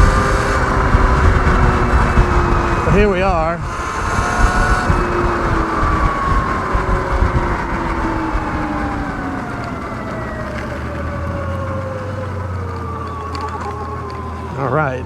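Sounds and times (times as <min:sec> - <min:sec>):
electric motor whine: 0:00.0 - 0:15.0
wind rumble on microphone: 0:00.0 - 0:15.0.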